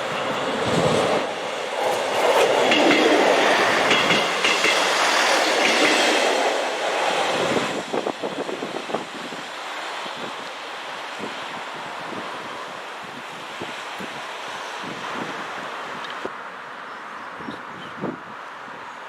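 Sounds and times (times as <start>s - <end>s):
wheels clacking over rail joints: 0.0s - 7.5s
train rumbling past: 0.0s - 10.0s.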